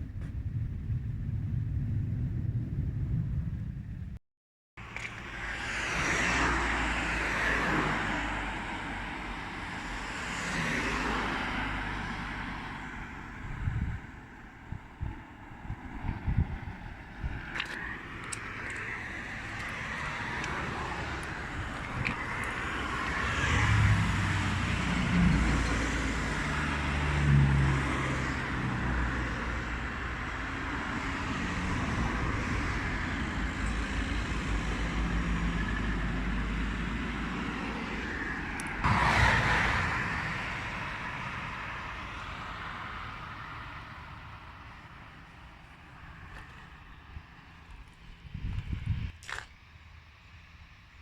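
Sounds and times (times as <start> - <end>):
wind buffeting microphone: 0.0 - 4.2, 9.7 - 43.5, 46.0 - 49.4
jet engine rush: 27.8 - 44.4.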